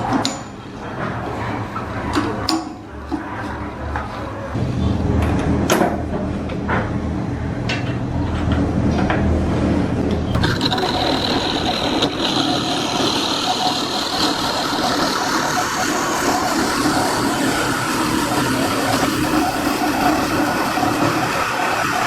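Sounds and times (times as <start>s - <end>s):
high whine: 10.0s - 22.0s
machine motor running: 10.3s - 22.0s.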